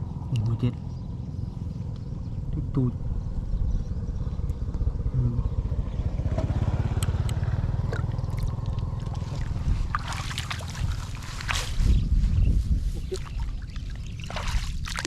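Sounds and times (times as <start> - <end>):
water splashing: 7.9 - 12.0, 13.0 - 15.0.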